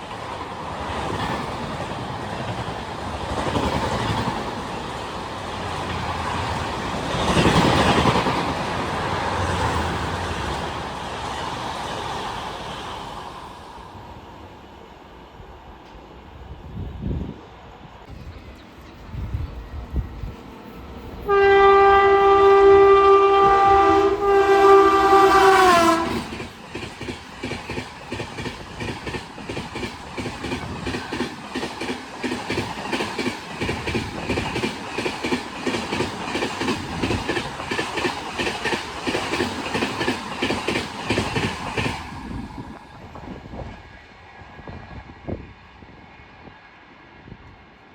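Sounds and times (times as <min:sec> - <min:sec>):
train wheels clickety-clack: 0:00.0 - 0:13.4, 0:18.0 - 0:45.6
train horn blowing: 0:21.2 - 0:26.4.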